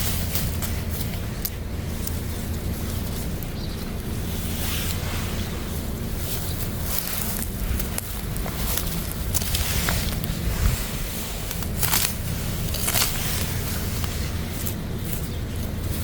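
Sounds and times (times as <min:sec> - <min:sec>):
plant rustling: 0:00.0 - 0:16.0
wind buffeting microphone: 0:00.0 - 0:16.0
plant stems snapping: 0:06.8 - 0:10.8, 0:11.4 - 0:15.3.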